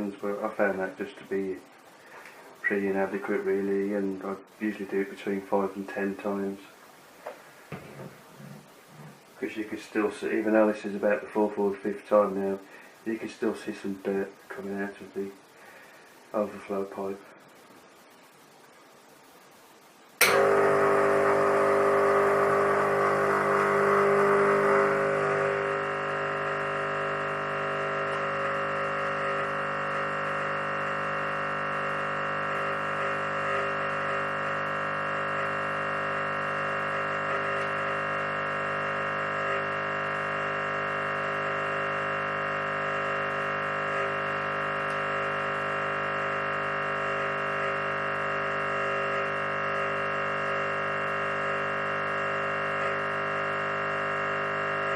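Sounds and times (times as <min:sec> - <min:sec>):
espresso machine pump buzzing: 0:20.2 - 0:54.9.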